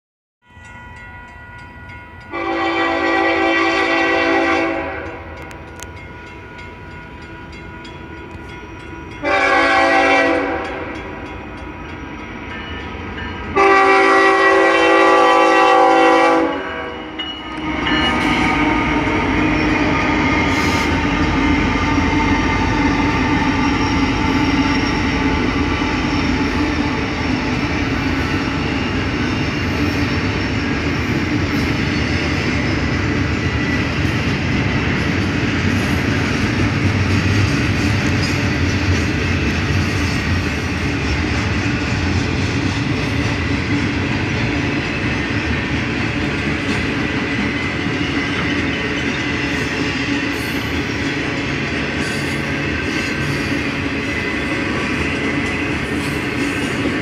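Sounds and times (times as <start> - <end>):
train wheels rumbling on rails: 1.0 - 57.0
locomotive air horn blasts: 2.3 - 5.4, 9.2 - 11.0, 13.6 - 21.1
locomotive engine drone: 5.0 - 9.9, 16.8 - 57.0.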